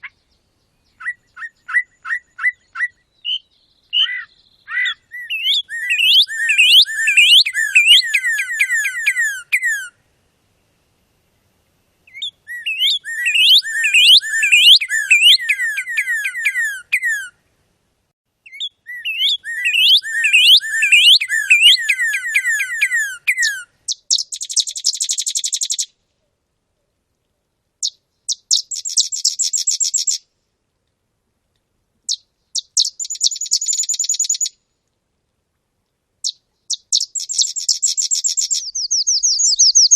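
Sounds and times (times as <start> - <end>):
songbird buzzy trills: 0.0 - 10.0, 11.3 - 17.4, 18.4 - 26.0, 27.8 - 30.3, 32.1 - 34.8, 36.2 - 39.9
songbird whistled notes: 0.8 - 9.9, 12.1 - 17.3, 18.5 - 25.9, 32.1 - 34.6, 36.2 - 39.9.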